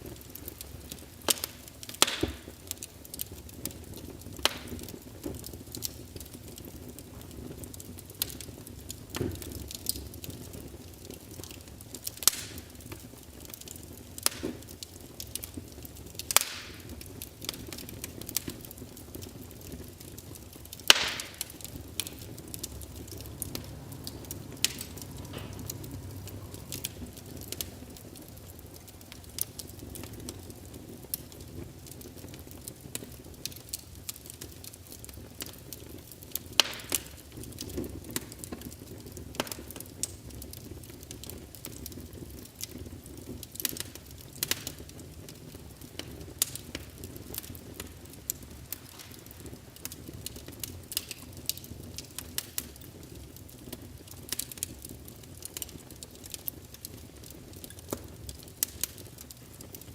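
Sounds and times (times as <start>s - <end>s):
wood fire crackling: 0.0s - 59.9s
faint low rumble: 21.6s - 31.3s.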